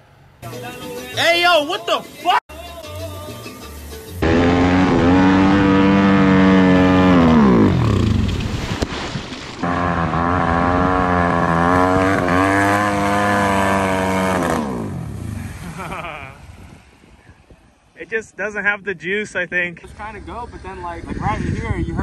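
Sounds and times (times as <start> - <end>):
pit bike engine revving: 4.2 - 8.6, 9.6 - 16.8.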